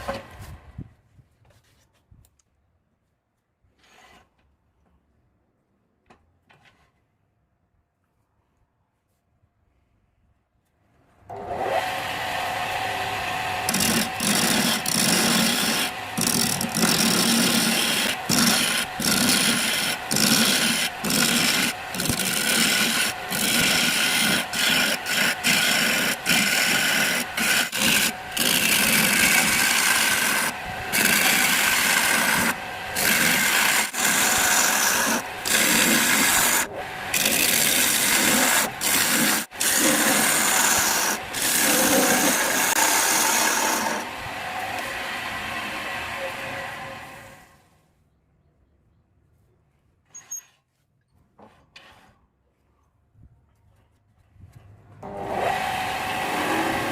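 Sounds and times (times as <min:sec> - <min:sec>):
tool scraping wood on lathe: 0:13.6 - 0:44.1.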